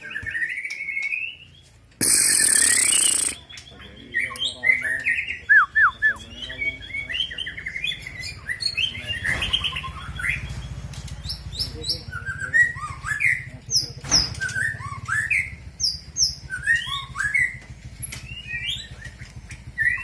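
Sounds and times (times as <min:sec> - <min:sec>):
bird singing whistled phrases: 0:00.0 - 0:10.4, 0:11.5 - 0:13.5, 0:14.4 - 0:17.6.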